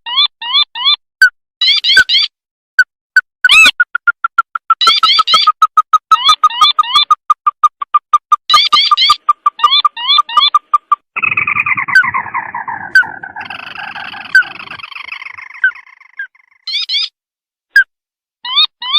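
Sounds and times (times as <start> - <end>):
crake chattering trill: 3.4 - 16.8.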